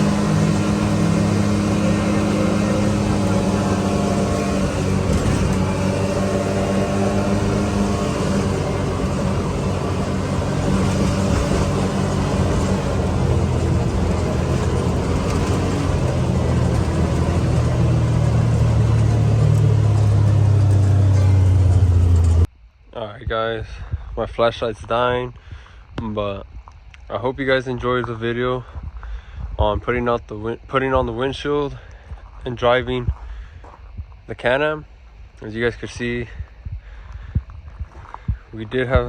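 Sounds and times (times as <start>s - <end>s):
off-road vehicle engine revving: 0.0s - 22.5s.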